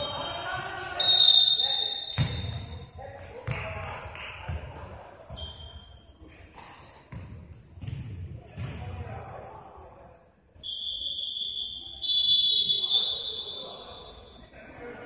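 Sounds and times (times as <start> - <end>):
players' voices echoing: 0.0 - 5.8, 11.0 - 15.0
ball bouncing: 2.1 - 2.8, 6.5 - 9.0
shoes squeaking on gym court: 5.3 - 11.0, 12.6 - 15.0.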